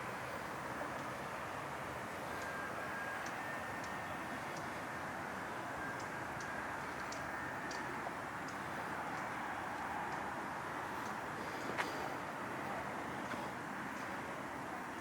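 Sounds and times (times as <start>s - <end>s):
outdoor background noise: 0.0s - 15.0s
light scattered ticks: 2.2s - 4.8s, 5.8s - 12.2s, 13.2s - 14.2s.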